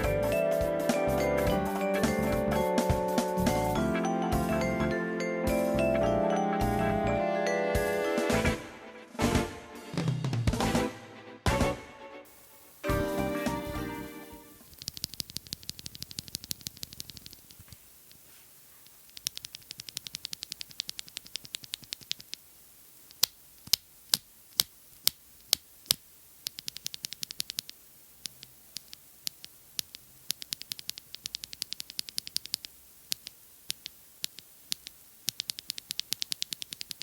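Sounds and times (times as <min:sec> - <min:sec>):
typing on mechanical keyboard: 0:14.7 - 0:17.6, 0:19.1 - 0:22.4, 0:26.5 - 0:37.0.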